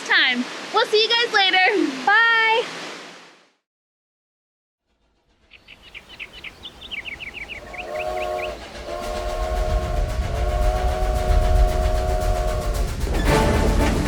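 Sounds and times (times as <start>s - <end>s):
train rumble: 4.9s - 14.0s
clatter of train wheels: 5.0s - 14.0s
steam train whistle: 7.3s - 14.0s.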